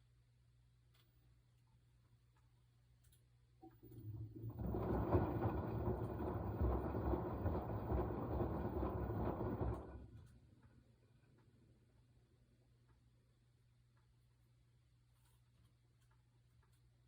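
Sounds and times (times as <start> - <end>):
washing machine drum rumbling: 3.6 - 11.0.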